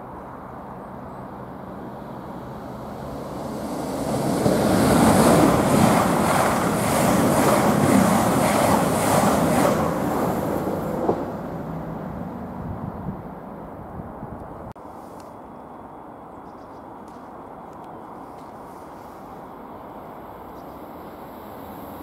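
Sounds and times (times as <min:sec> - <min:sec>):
train rushing past: 0:00.4 - 0:14.2.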